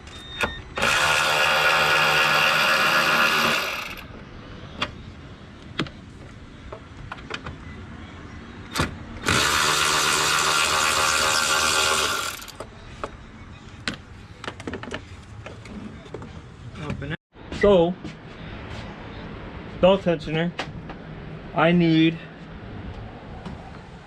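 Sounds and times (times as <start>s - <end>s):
power tool motor running: 0.8s - 4.1s, 9.2s - 12.6s.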